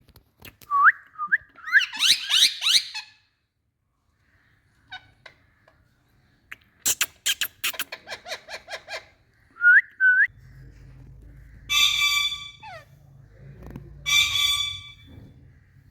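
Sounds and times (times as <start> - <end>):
parrot chattering calls: 11.6 - 12.9
parrot harsh screeches: 11.7 - 12.9, 14.1 - 15.1.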